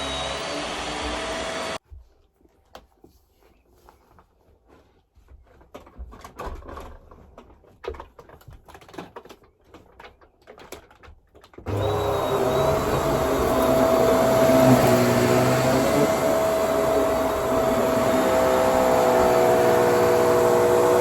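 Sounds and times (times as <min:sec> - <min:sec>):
vacuum cleaner motor whine: 0:00.0 - 0:01.8, 0:11.7 - 0:21.0.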